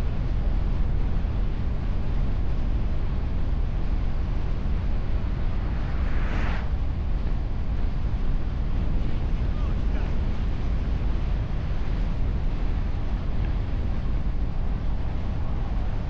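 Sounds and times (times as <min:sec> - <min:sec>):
wind and road noise: 0:00.0 - 0:16.0
brief hiss: 0:05.7 - 0:06.7.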